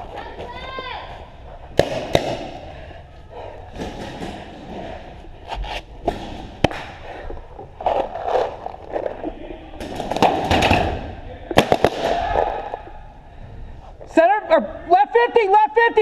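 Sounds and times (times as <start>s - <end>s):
paintball markers firing: 11.6s - 12.4s.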